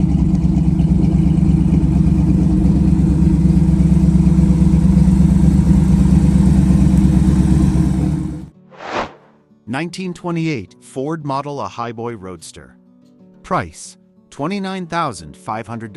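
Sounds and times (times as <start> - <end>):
car engine idling: 0.0 - 8.5.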